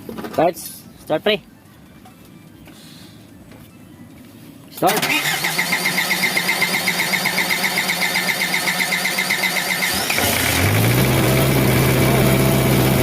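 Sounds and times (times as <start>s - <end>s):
starter cranking diesel engine: 4.9s - 13.0s
diesel engine running: 5.0s - 13.0s.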